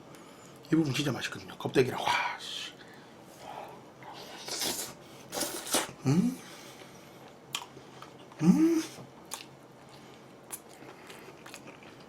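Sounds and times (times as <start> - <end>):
person humming: 6.0 - 6.5, 8.4 - 9.0
person chewing food: 7.2 - 12.0.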